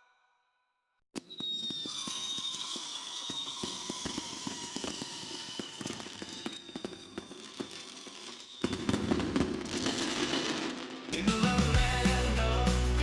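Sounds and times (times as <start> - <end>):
fireworks crackling pops: 1.2 - 11.5
fireworks bangs: 1.3 - 12.0.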